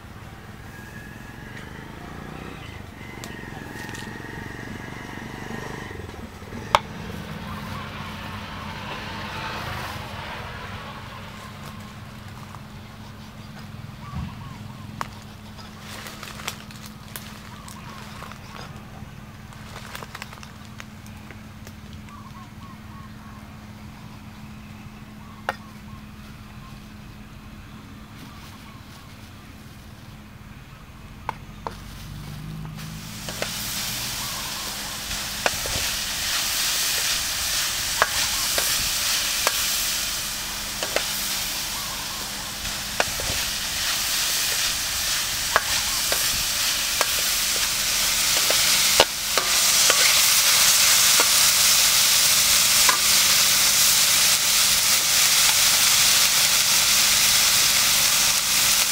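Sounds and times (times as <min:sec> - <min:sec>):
meat sizzling in a wok: 0:32.8 - 0:58.9
metal spatula scraping wok: 0:33.2 - 0:54.3.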